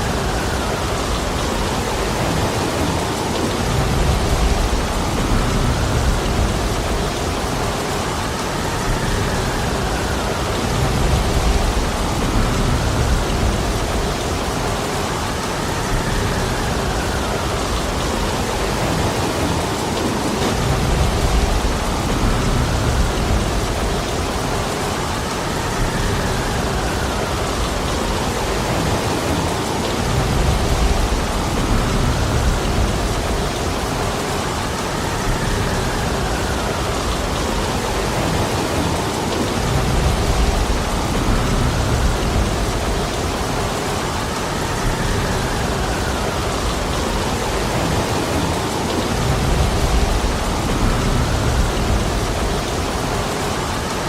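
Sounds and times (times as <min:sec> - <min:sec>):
heavy rain pouring: 0:00.0 - 0:54.0
low rumbling swells: 0:20.4 - 0:54.0.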